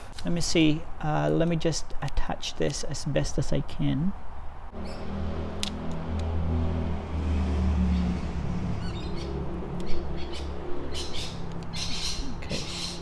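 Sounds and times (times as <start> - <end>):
small birds twittering: 4.8 - 5.1, 8.8 - 13.0.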